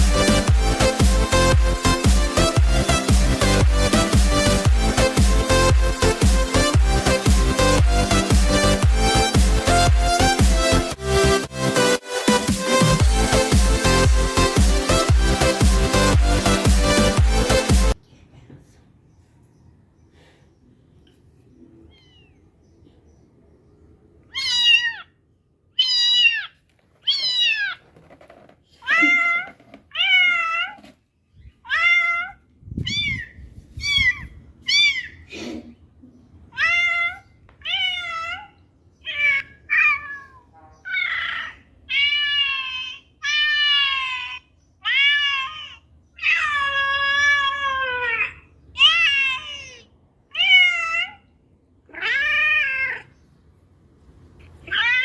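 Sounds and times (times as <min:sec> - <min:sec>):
kitten meowing: 0:21.9 - 0:22.4, 0:24.3 - 0:25.1, 0:25.7 - 0:27.8, 0:31.6 - 0:35.2, 0:36.5 - 0:51.2, 0:51.9 - 0:53.1, 0:54.6 - 0:55.0.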